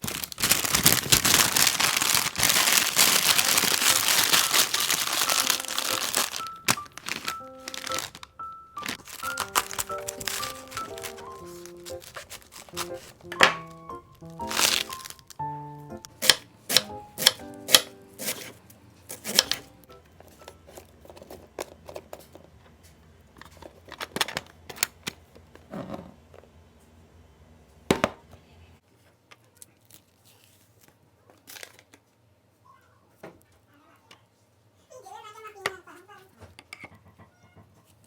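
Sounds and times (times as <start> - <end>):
background music: 2.8 - 20.6.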